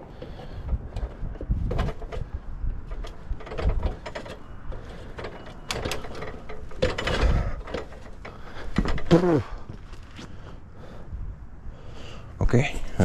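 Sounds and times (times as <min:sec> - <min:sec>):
metal hardware clicks and knocks: 0:00.6 - 0:09.2.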